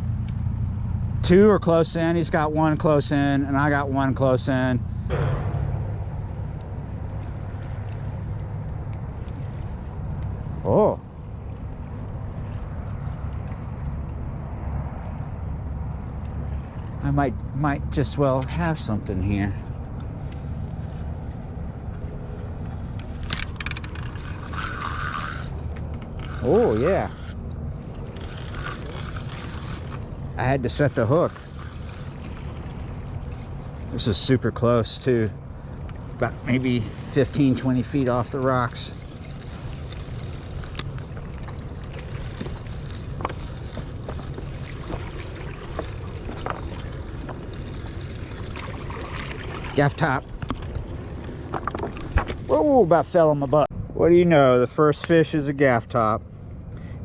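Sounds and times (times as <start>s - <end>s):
steady low rumble: 0.0s - 54.8s
fishing reel clicking: 23.0s - 30.0s, 30.6s - 32.4s, 36.4s - 48.5s.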